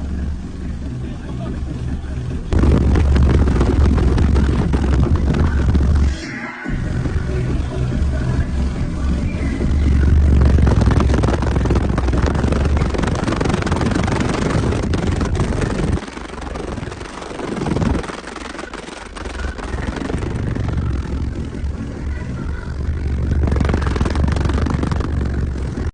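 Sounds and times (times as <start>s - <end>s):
loud bass-heavy car music: 0.0s - 25.9s.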